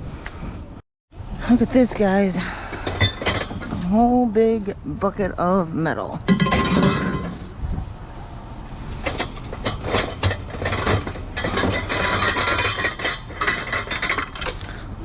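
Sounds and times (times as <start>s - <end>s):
scrap metal clanking: 2.7s - 4.1s, 6.3s - 7.6s, 8.8s - 15.0s.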